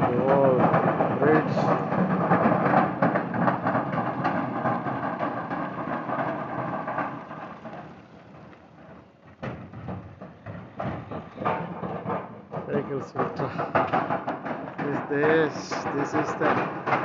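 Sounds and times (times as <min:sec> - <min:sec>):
vehicle rumbling in motion: 0:00.0 - 0:17.0
sharp knock: 0:09.4 - 0:17.0.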